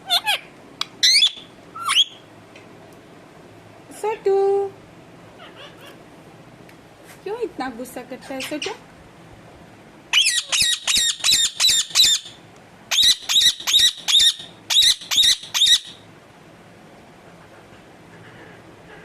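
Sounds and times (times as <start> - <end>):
parrot squawking harshly: 0.0 - 2.2, 5.4 - 6.0, 10.1 - 16.0.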